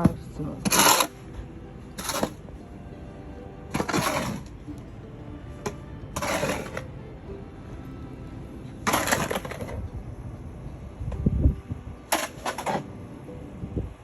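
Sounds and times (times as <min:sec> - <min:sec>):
snow shovel scraping: 0:00.6 - 0:01.2, 0:01.9 - 0:02.4, 0:03.7 - 0:04.6, 0:06.1 - 0:06.9, 0:08.8 - 0:09.8, 0:12.1 - 0:12.9.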